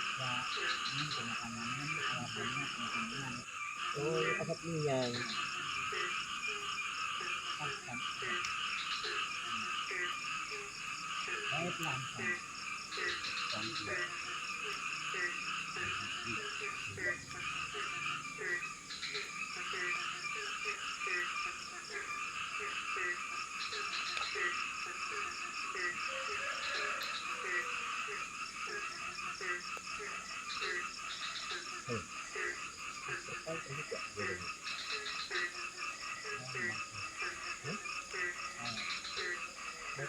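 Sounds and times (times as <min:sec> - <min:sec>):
frogs calling: 0:00.0 - 0:40.0
high insect drone: 0:00.0 - 0:40.0.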